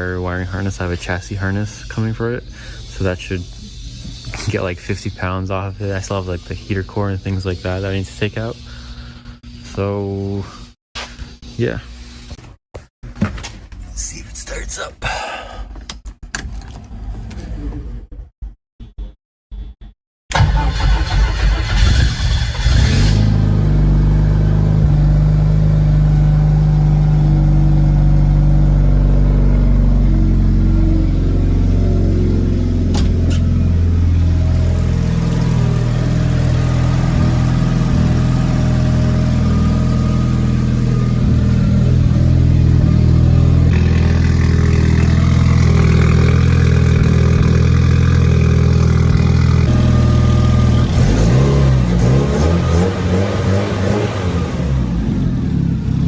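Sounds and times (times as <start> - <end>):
car engine idling: 23.5 - 56.0.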